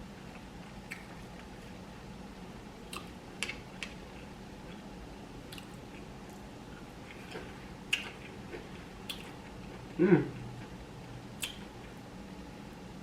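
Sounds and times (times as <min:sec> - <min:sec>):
person chewing food: 0:00.3 - 0:01.8, 0:02.8 - 0:12.0
wet mouth clicks: 0:11.4 - 0:11.6.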